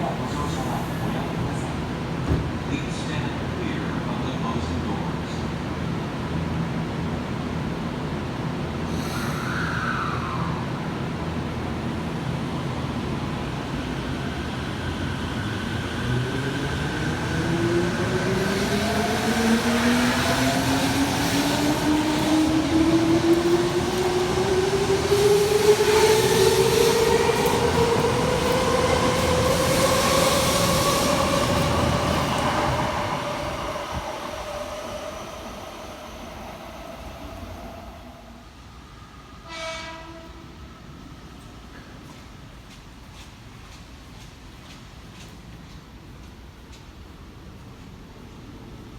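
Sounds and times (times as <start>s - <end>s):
wheel and rail rumble: 17.4s - 37.9s.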